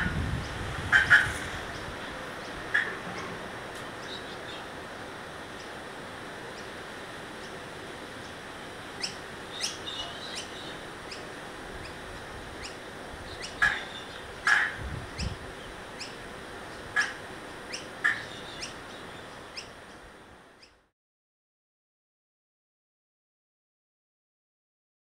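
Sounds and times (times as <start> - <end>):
steady hiss: 0.0 - 20.8
small birds chirping: 3.9 - 4.7, 6.5 - 6.8, 9.0 - 12.0, 12.6 - 20.8.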